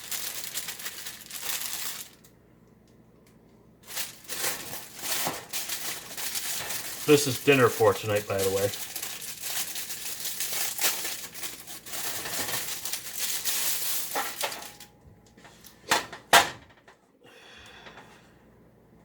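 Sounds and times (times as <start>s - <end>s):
plastic wrapping crinkling: 0.0s - 2.3s, 3.8s - 14.9s.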